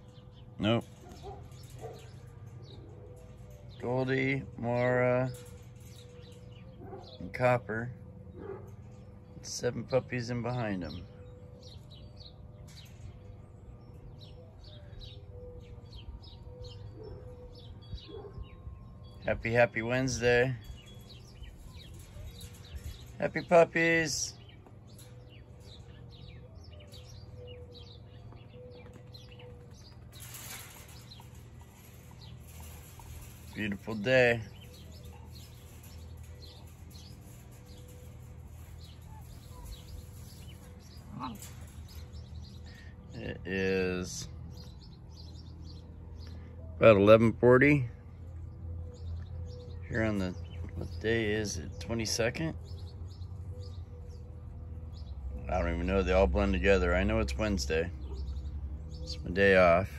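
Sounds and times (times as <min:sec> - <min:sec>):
small birds chirping: 0:00.0 - 0:59.9
steady low hum: 0:00.0 - 0:59.9
low outdoor rumble: 0:15.8 - 0:59.9
small bird chirping: 0:24.3 - 0:43.3.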